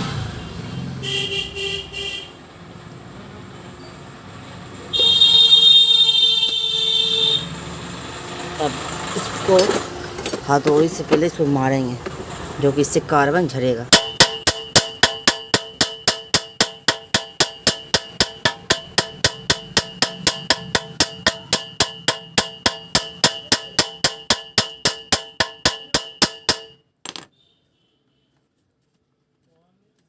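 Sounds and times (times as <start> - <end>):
hammer tapping on metal: 13.9 - 26.8.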